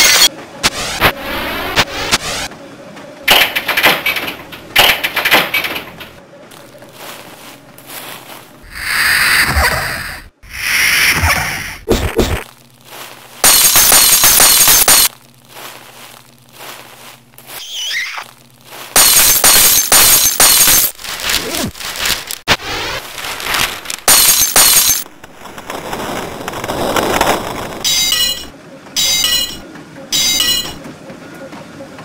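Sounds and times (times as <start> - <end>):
low steady hum: 5.8 - 8.7, 12.2 - 17.6
harsh crackling noise bursts: 10.4 - 28.0.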